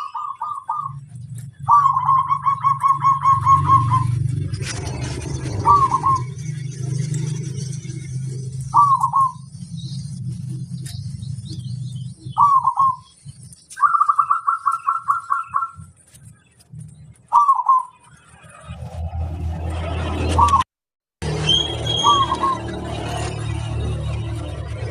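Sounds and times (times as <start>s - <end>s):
dove cooing: 0.0s - 6.4s, 8.7s - 9.4s, 12.3s - 13.1s, 17.3s - 18.0s
low hum: 0.1s - 13.8s, 14.9s - 24.9s.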